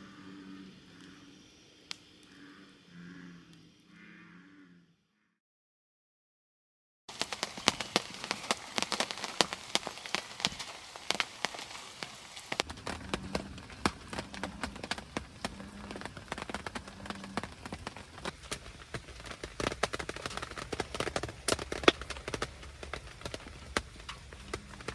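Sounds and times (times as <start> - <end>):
frogs croaking: 0.0 - 5.4, 7.1 - 24.9
raindrops striking: 7.1 - 24.9.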